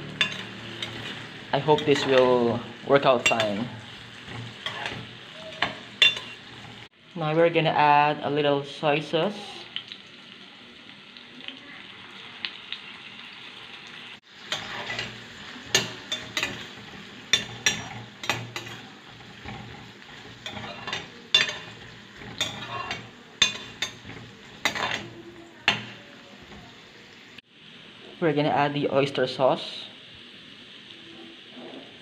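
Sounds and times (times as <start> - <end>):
metal spoon clinking and scraping: 0.0 - 2.5, 3.1 - 6.9, 14.4 - 26.7
vegetables sizzling in butter: 0.0 - 32.0.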